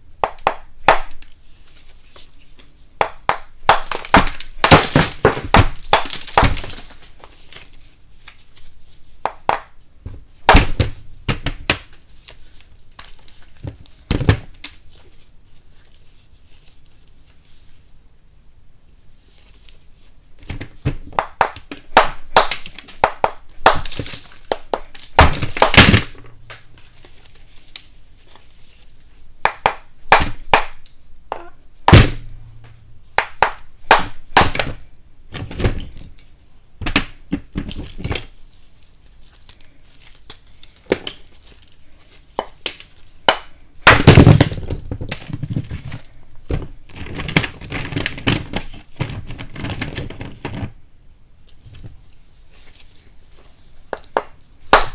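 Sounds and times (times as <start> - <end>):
chalk snapping and crumbling: 3.7 - 8.4, 22.3 - 28.5.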